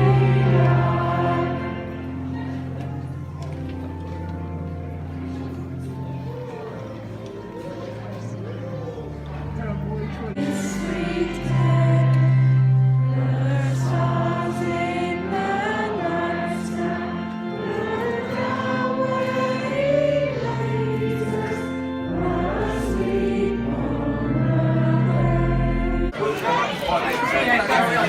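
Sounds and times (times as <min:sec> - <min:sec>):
choir and congregation singing hymn: 0:00.0 - 0:03.3, 0:10.4 - 0:26.2
long held low accompaniment: 0:00.0 - 0:26.2.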